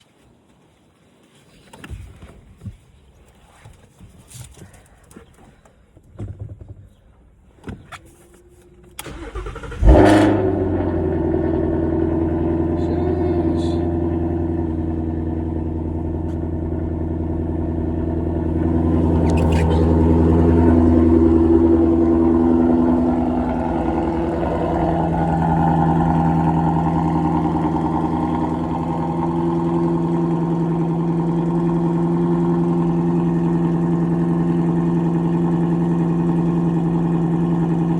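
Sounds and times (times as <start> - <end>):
car engine starting and idling: 7.2 - 37.9
starter motor cranking: 9.0 - 10.0.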